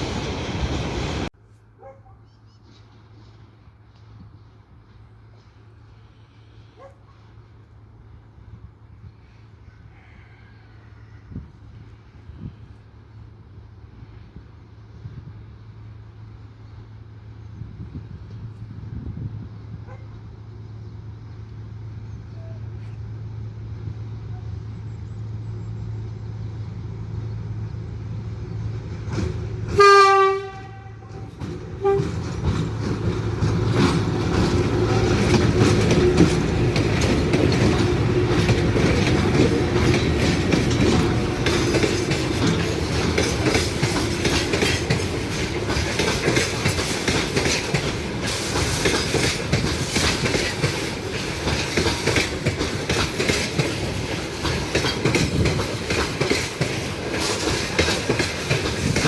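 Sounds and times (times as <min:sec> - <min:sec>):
train wheels clattering over rails: 0:28.6 - 0:59.0
train horn blast: 0:29.7 - 0:32.3.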